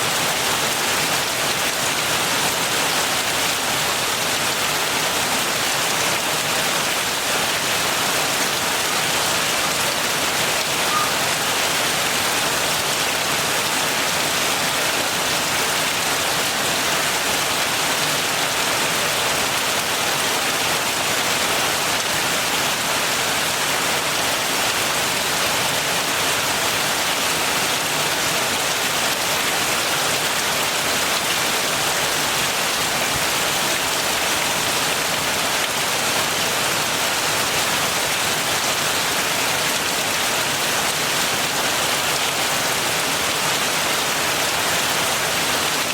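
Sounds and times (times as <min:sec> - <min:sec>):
heavy rain: 0:00.0 - 0:45.9.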